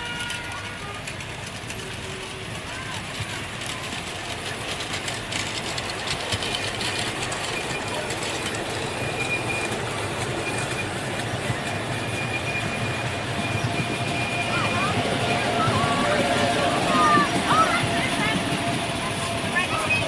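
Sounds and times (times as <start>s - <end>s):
train wheels clicking over rails: 0.0s - 20.0s
high wheel squeal: 4.6s - 20.0s.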